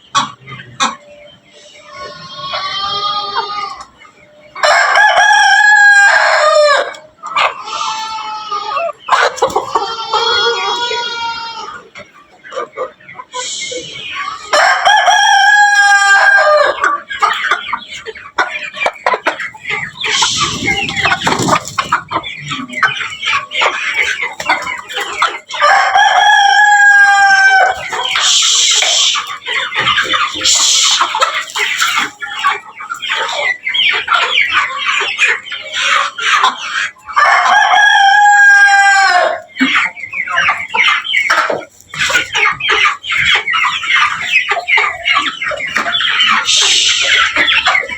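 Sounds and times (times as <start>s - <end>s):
chickens clucking: 0.0s - 47.9s
roosters crowing: 1.6s - 12.0s, 13.4s - 18.0s, 19.1s - 47.9s.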